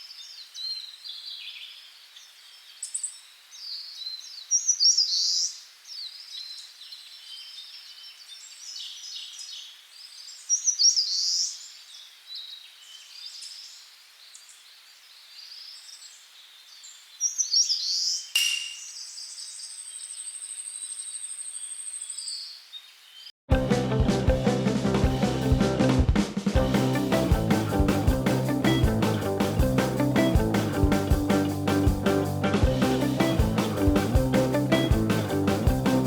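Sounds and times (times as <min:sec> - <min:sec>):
wild birds chirping: 0:00.0 - 0:23.3, 0:26.6 - 0:36.0
high thin tone: 0:18.4 - 0:19.0
music with drums: 0:23.5 - 0:36.0.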